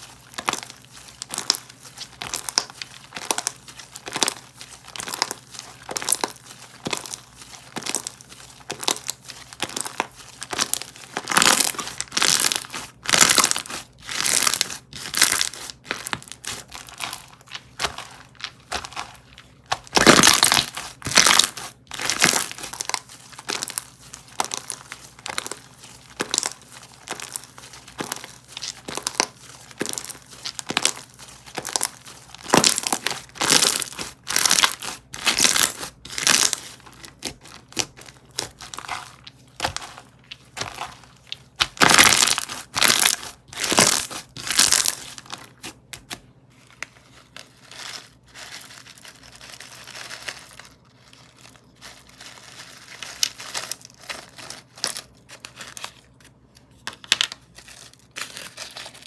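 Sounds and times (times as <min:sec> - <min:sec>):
hands squishing slime: 0:00.0 - 0:46.2
slime crushing presses: 0:00.3 - 0:46.2.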